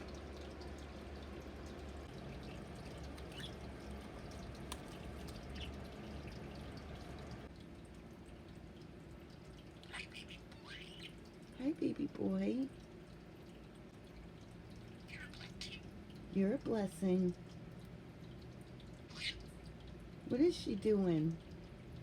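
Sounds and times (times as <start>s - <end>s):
faint budgie chirps: 3.2s - 3.6s, 9.8s - 11.2s, 15.1s - 15.9s, 19.1s - 19.5s.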